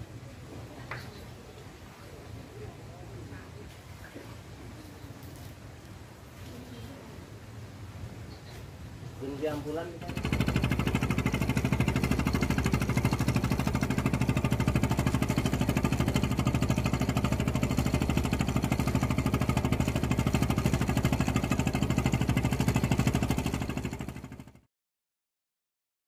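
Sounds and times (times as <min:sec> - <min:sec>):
engine idling: 0:09.9 - 0:24.6.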